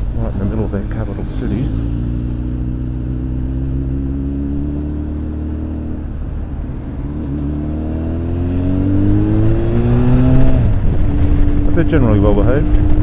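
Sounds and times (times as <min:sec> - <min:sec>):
motorcycle engine accelerating: 0:00.4 - 0:06.1, 0:07.0 - 0:13.0.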